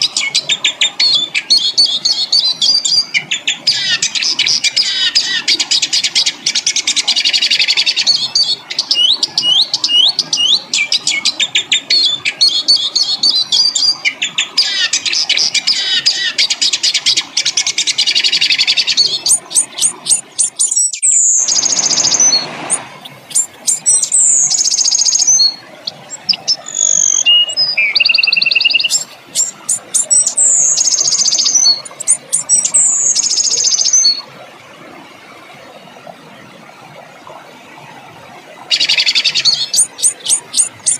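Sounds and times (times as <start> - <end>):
songbird trilling and chattering: 7.1 - 22.4, 23.3 - 34.2, 38.7 - 40.9.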